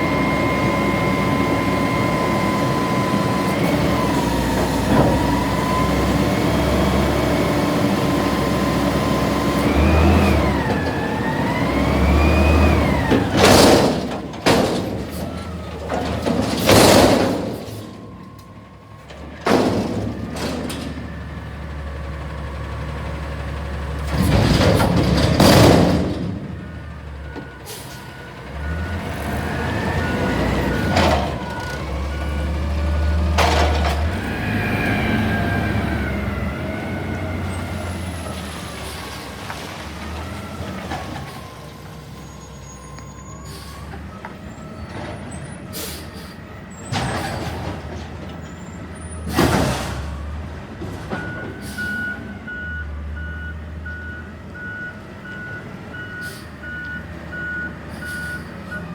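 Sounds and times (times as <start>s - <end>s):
garbage truck engine revving: 0.0s - 58.9s
faint reversing beep: 51.2s - 58.9s.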